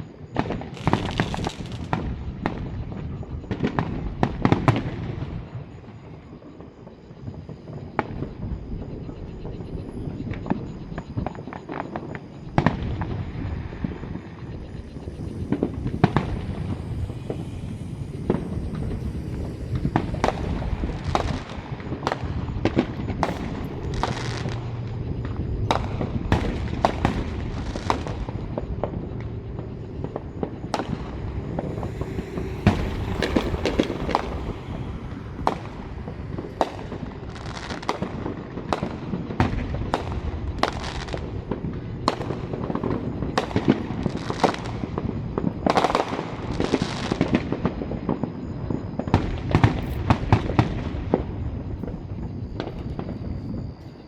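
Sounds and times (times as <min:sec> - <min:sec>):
fireworks bangs and crackling: 0:00.0 - 0:54.0
low rumble: 0:12.7 - 0:38.8.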